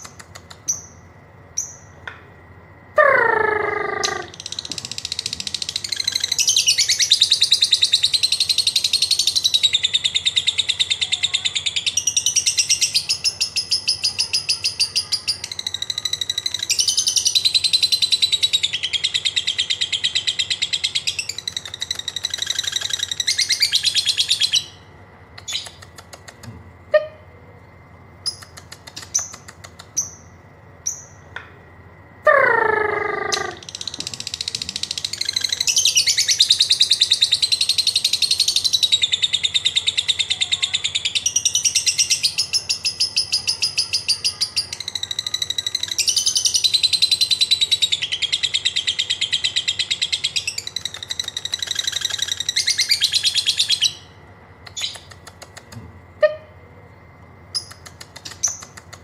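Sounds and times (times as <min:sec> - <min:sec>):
lovebird shrill chatter: 0:03.0 - 0:09.7, 0:32.3 - 0:39.0, 0:49.6 - 0:55.1.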